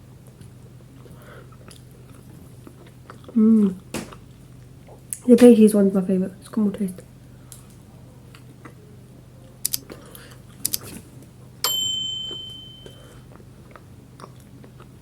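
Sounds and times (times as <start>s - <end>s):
steady low hum: 0.0s - 15.0s
chewing food: 0.2s - 5.2s, 8.3s - 8.8s, 13.2s - 15.0s
high ringing ding: 11.6s - 13.1s.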